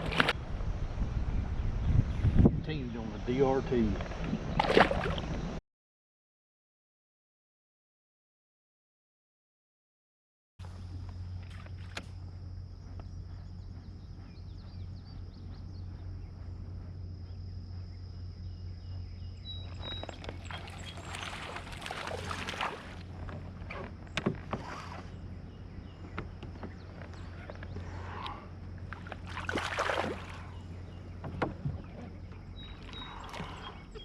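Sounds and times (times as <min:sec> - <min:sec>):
water splashing and sloshing: 0:00.0 - 0:00.4, 0:04.0 - 0:05.6, 0:10.6 - 0:12.3, 0:19.6 - 0:34.0
steady low hum: 0:10.6 - 0:34.0.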